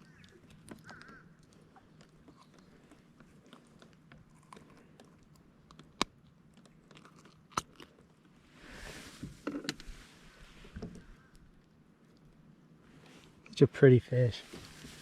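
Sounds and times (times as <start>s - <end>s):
light clicks and taps on kayak: 0.0s - 6.2s
rushing rustle: 14.3s - 15.0s.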